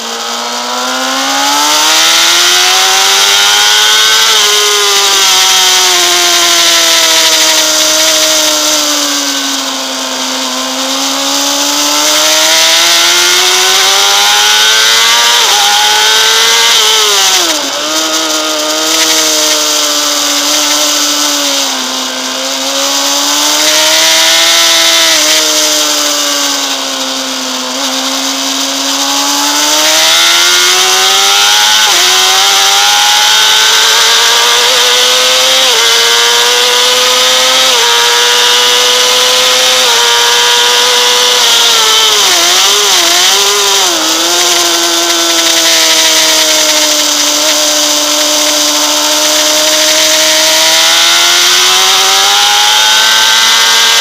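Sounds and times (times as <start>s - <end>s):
motorcycle engine screaming: 0.0s - 54.0s.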